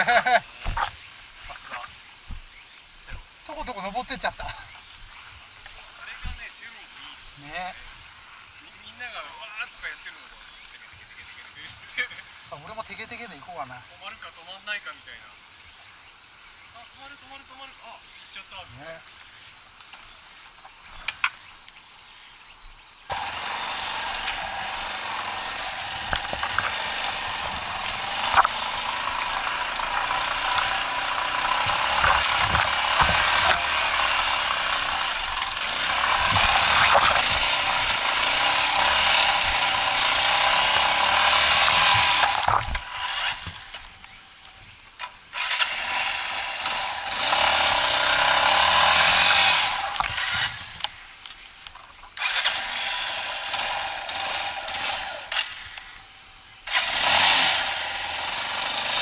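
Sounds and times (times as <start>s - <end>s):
dirt bike engine under load: 23.1s - 43.8s, 51.8s - 55.6s.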